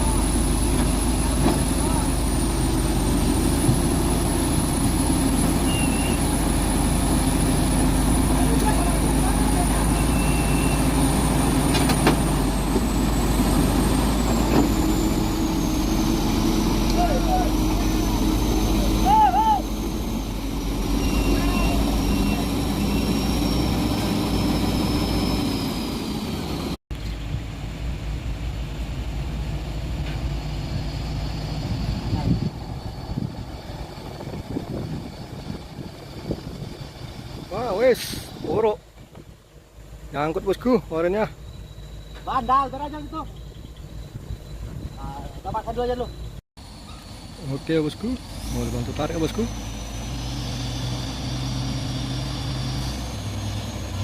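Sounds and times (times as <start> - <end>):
diesel truck engine droning: 0.0 - 54.0
thin high tone: 16.7 - 26.1, 40.3 - 47.7.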